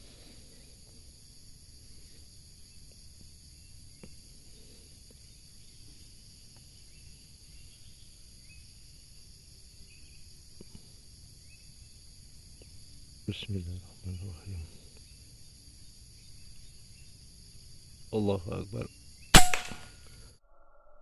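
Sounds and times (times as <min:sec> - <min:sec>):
insects droning: 0:00.0 - 0:21.0
faint ticks: 0:04.0 - 0:04.2, 0:10.5 - 0:10.9.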